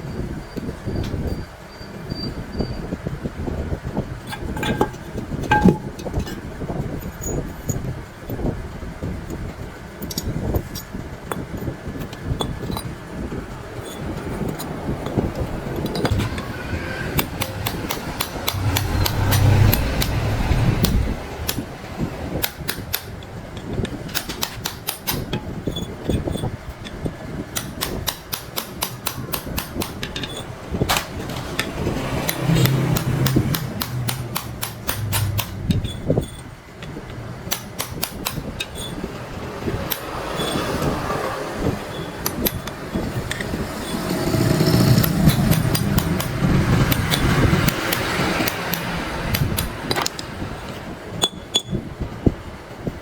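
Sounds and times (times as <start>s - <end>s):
hand tools striking metal: 4.3s - 7.9s, 10.0s - 12.9s, 13.8s - 21.7s, 22.3s - 39.1s, 39.9s - 41.0s, 41.9s - 51.8s
low hum: 30.4s - 37.5s.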